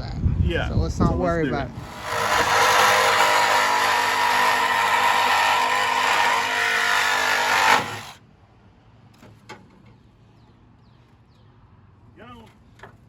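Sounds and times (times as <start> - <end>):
power tool cutting metal: 1.8 - 8.2.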